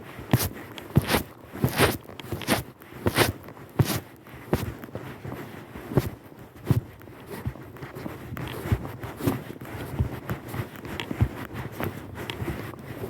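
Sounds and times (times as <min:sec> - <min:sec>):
horse hooves walking: 0:00.3 - 0:13.0.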